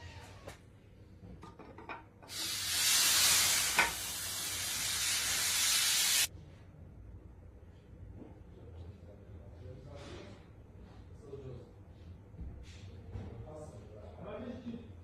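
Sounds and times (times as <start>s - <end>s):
pressurised spray hissing: 2.3s - 6.3s.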